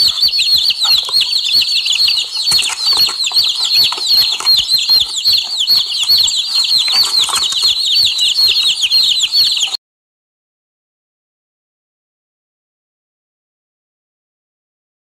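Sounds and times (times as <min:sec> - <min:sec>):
chicks peeping: 0:00.0 - 0:09.8.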